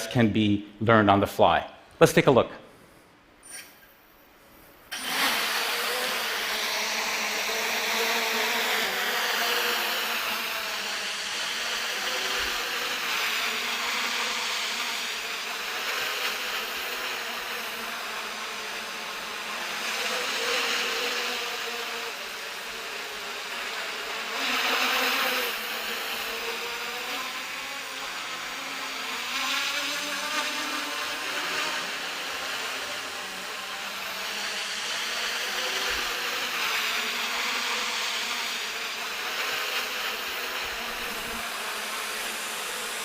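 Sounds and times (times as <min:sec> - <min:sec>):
propellers buzzing: 0:04.9 - 0:22.7, 0:23.4 - 0:43.0.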